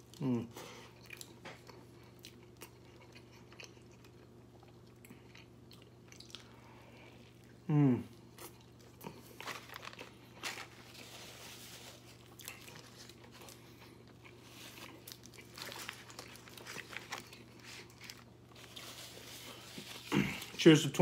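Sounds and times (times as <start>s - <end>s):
faint chewing: 0.0s - 20.6s
foil wrapper crinkling: 9.1s - 20.8s.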